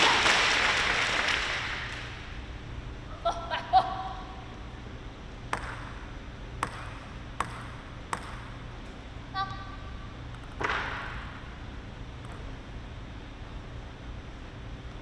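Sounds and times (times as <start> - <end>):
table tennis ball clicking: 5.5 - 6.0.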